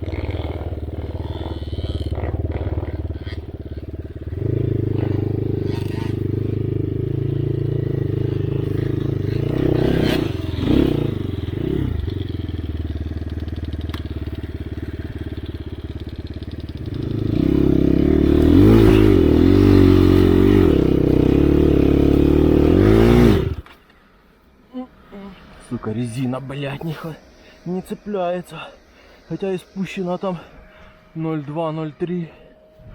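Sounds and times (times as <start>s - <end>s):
dirt bike engine revving: 0.0s - 23.8s.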